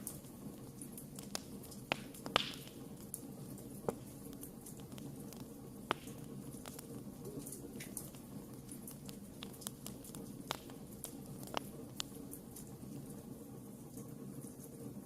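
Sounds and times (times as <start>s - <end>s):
campfire pops and snaps: 0.0s - 13.0s
fire burning: 0.0s - 14.2s.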